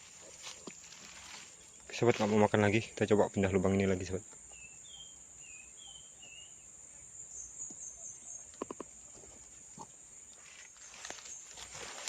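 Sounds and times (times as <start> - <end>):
rustling: 0.0 - 2.6, 10.3 - 12.0.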